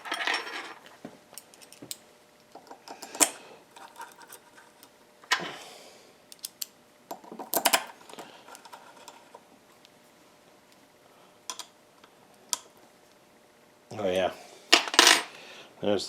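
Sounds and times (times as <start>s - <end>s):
metal parts clinking: 0.0s - 2.0s, 2.6s - 5.4s, 6.3s - 9.4s.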